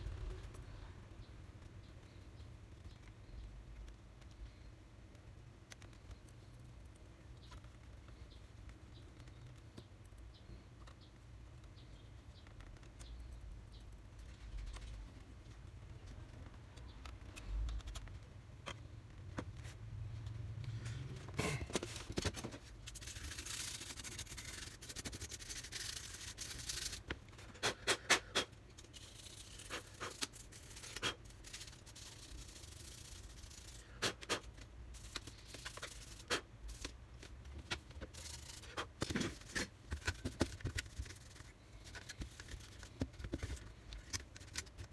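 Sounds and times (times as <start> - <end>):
small clicks of plastic parts: 1.6 - 19.6
hands rubbing and scraping: 21.4 - 44.9.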